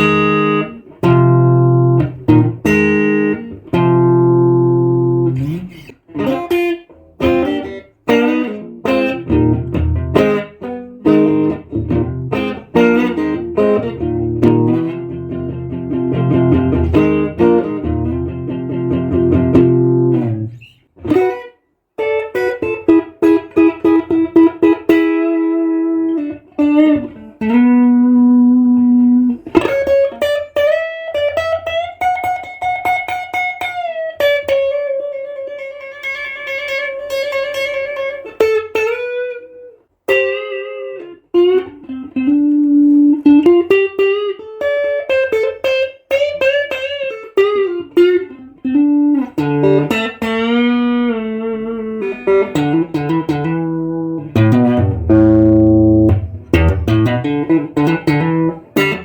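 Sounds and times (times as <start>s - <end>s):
electric guitar lead line: 0.0s - 59.0s.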